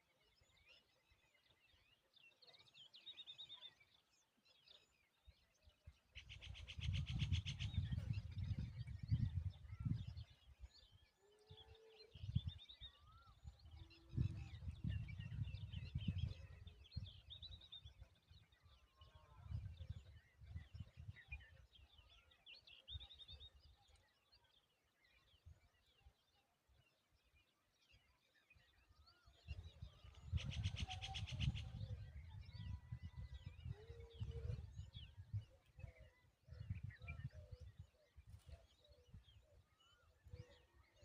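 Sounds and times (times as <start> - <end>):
small birds chirping: 27.2 - 41.0.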